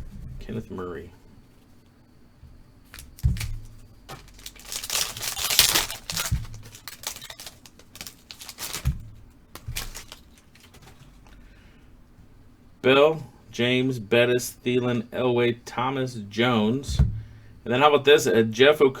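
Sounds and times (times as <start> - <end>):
wrapper tearing and crinkling: 2.9 - 9.0, 9.6 - 11.1
rustling and clicking: 2.9 - 11.3.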